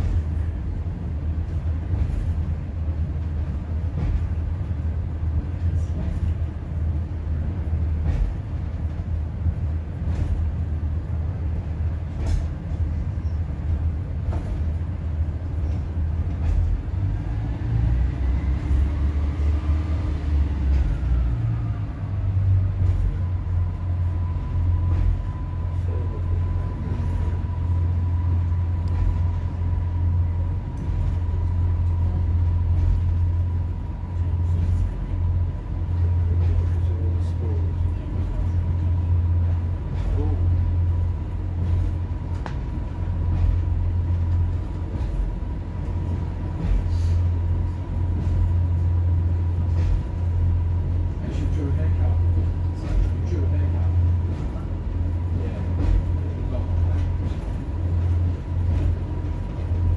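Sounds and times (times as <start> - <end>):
train wheel rumble: 0.0 - 59.9
diesel engine drone: 13.1 - 59.9.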